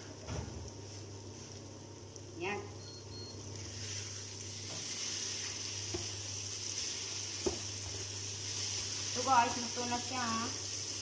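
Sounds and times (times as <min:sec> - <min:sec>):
food sizzling in a frying pan: 0:02.4 - 0:11.0
cooktop beep: 0:02.6 - 0:03.7.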